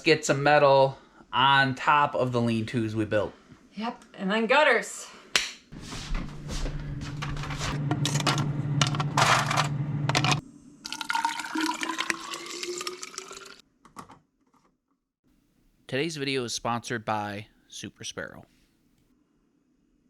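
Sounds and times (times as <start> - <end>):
water filling a container: 10.8 - 13.6.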